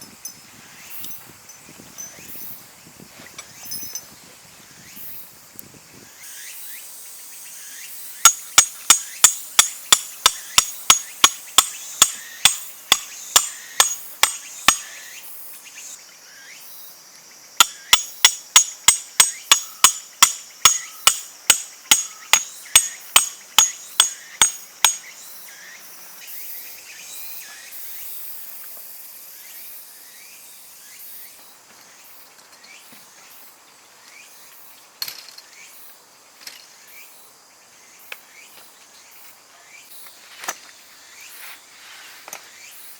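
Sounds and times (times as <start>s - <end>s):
sharp ringing metallic strikes: 8.3s - 14.9s, 17.6s - 25.1s.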